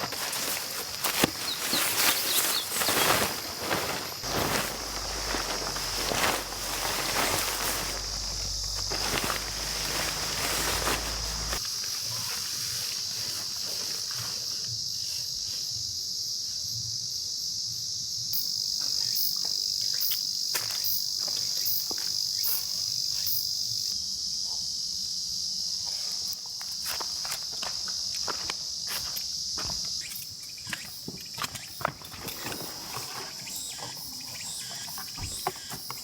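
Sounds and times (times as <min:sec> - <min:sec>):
rustling and crunching footsteps: 0:00.0 - 0:14.6, 0:26.6 - 0:30.0, 0:30.6 - 0:36.0
insects buzzing trill: 0:00.0 - 0:24.0, 0:25.2 - 0:36.0.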